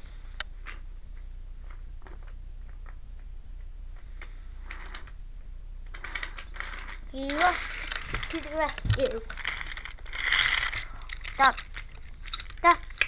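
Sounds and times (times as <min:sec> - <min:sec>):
low steady hum: 0:00.0 - 0:13.0
toy trains clicking on wooden track: 0:05.9 - 0:13.0.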